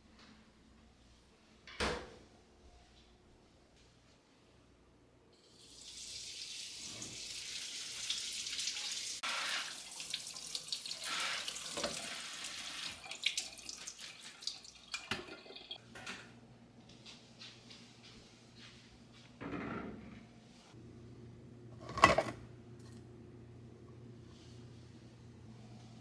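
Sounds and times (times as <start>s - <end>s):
tap water running into sink: 5.6s - 15.8s
water splashing and dripping: 7.9s - 15.8s.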